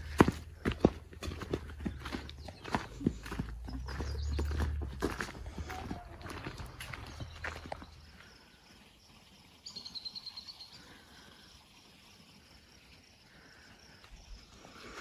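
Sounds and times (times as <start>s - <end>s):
footsteps on dirt trail: 0.0s - 8.4s.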